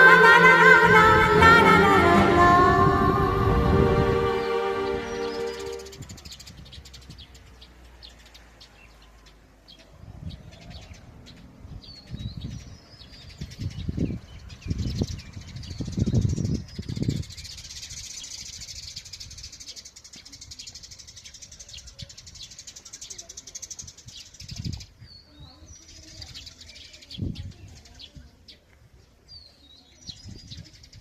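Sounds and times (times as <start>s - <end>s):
high pulsing chirr: 0.0s - 6.0s.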